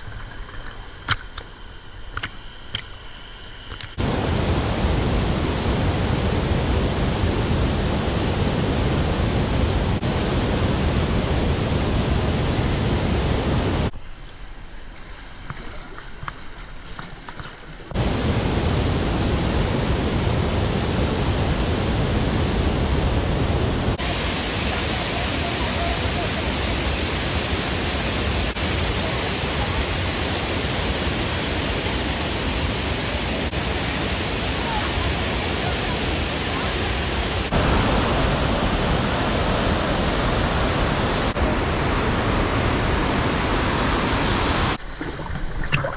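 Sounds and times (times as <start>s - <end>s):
quiet water sound: 0.0s - 45.9s
waterfall rushing: 18.0s - 44.8s.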